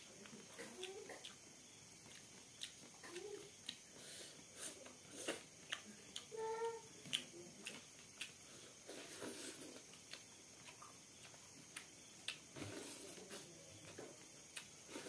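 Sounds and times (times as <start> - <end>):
chewing and wet mouth clicks: 0.2 - 1.4, 2.0 - 3.8, 4.8 - 6.3, 7.0 - 8.4, 9.8 - 12.5, 14.5 - 14.7.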